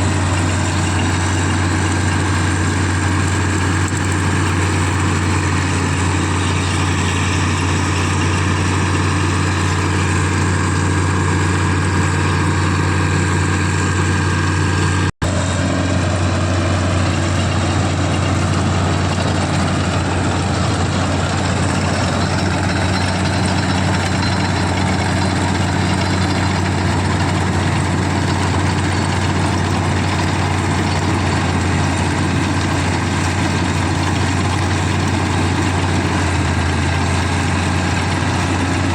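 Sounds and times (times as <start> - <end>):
diesel engine humming: 0.0 - 38.9.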